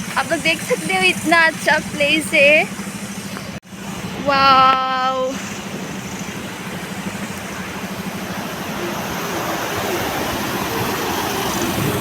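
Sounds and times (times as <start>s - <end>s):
waterfall rushing: 4.1s - 12.0s.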